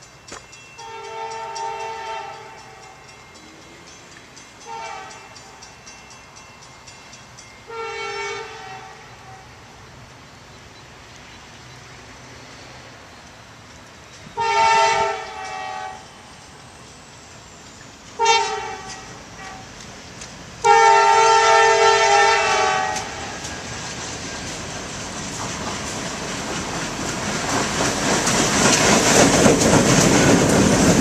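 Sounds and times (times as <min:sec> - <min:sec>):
locomotive air horn blasts: 0:00.8 - 0:02.9, 0:04.7 - 0:05.2, 0:07.7 - 0:09.6, 0:14.4 - 0:16.1, 0:18.2 - 0:19.7, 0:20.6 - 0:23.4.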